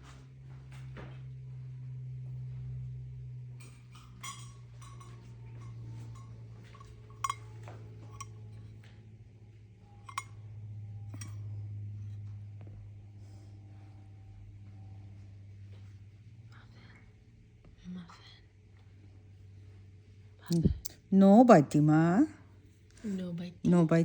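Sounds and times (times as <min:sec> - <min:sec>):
steady low hum: 0:00.0 - 0:24.0
bowl clinking: 0:03.5 - 0:09.0, 0:09.9 - 0:12.3.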